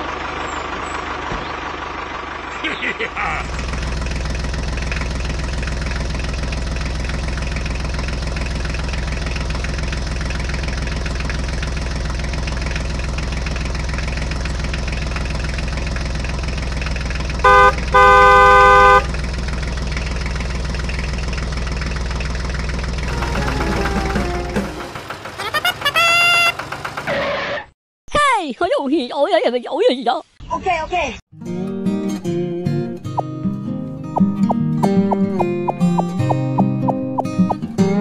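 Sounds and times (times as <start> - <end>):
tractor engine running: 0.0 - 27.2, 33.0 - 38.0
horn honking: 17.4 - 19.2, 23.1 - 26.7.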